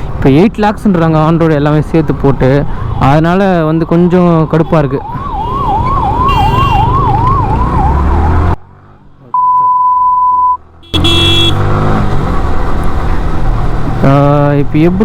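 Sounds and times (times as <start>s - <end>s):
traffic rumble: 0.0s - 9.6s, 10.2s - 15.0s
wind: 0.0s - 15.0s
emergency vehicle siren: 2.3s - 8.6s
vehicle horn: 6.3s - 6.9s, 10.8s - 11.8s
steady single beep: 9.4s - 11.5s.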